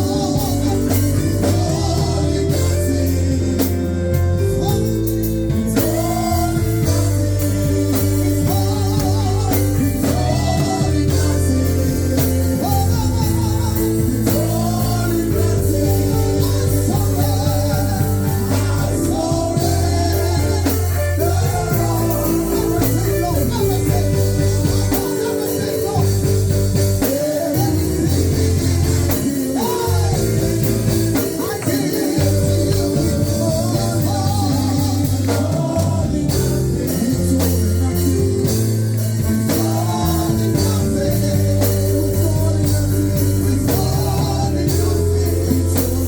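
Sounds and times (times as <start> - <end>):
band playing: 0.0 - 46.0
people singing: 0.0 - 46.0.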